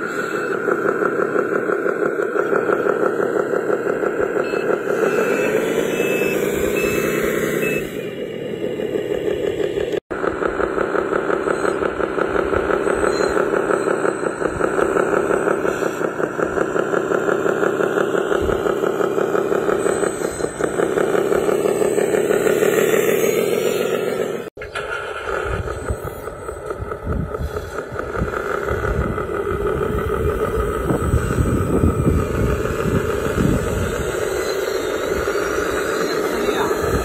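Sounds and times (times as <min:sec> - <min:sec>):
pulsing model motor: 0:14.7 - 0:24.5, 0:27.3 - 0:37.0.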